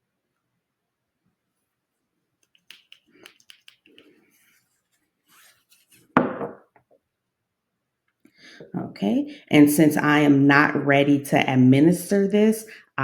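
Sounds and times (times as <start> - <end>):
plastic syringe clicks and taps: 2.4 - 4.1.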